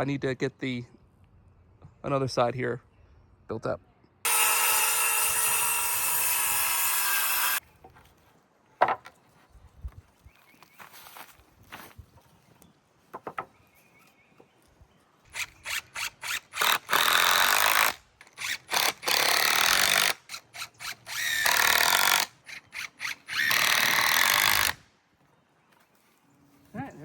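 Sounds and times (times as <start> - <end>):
power drill driving screws: 4.3 - 7.6, 15.3 - 24.8.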